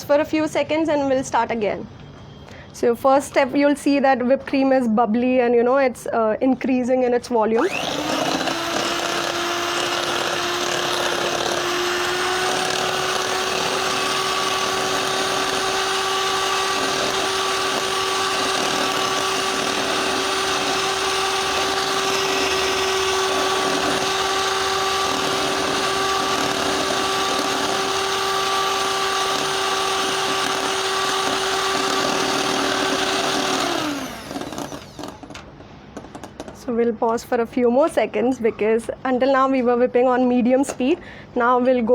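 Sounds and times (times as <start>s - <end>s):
electric mixer whipping cream: 7.6s - 35.4s.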